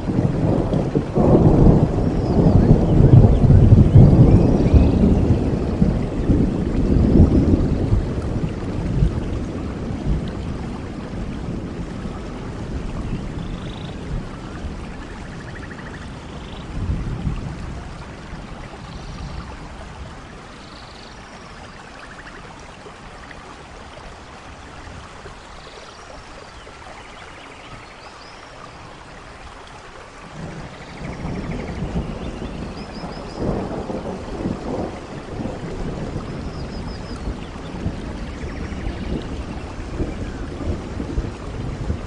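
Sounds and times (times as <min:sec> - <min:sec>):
low rolling thunder: 0:00.0 - 0:20.6, 0:30.2 - 0:42.0
steady rain in a forest: 0:00.0 - 0:42.0.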